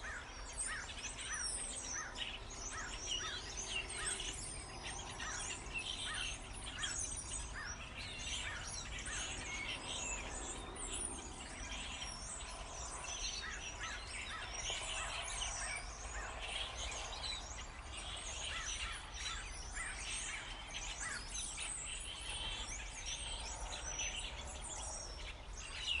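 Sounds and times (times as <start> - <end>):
flock of starlings chattering: 0.0 - 26.0.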